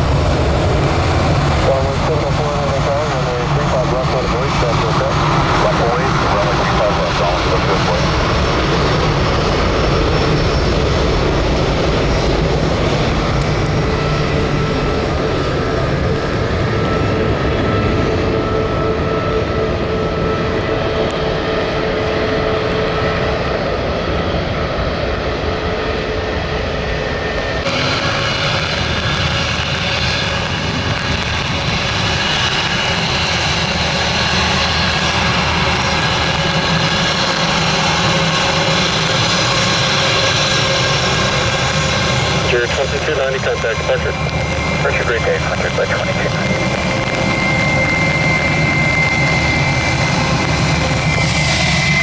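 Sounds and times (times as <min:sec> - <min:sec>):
jet airliner engines running: 0:00.0 - 0:52.0
whining engine tones: 0:00.0 - 0:52.0.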